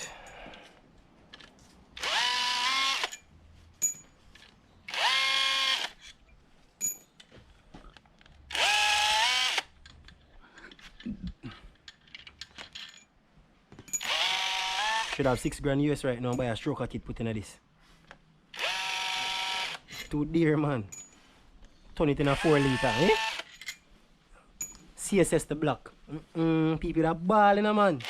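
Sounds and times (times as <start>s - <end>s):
power drill motor whine: 2.0s - 3.2s, 4.9s - 6.0s, 8.5s - 9.7s, 14.0s - 15.2s, 18.6s - 19.8s, 22.4s - 23.5s
tools and parts clattering: 3.0s - 4.6s, 6.8s - 8.4s, 9.7s - 14.1s, 20.9s - 21.3s, 23.4s - 23.9s, 24.6s - 24.9s.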